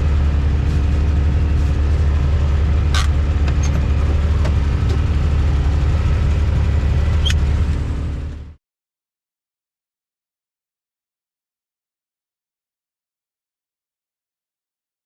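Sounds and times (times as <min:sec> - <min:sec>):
vehicle engine idling: 0:00.0 - 0:08.6.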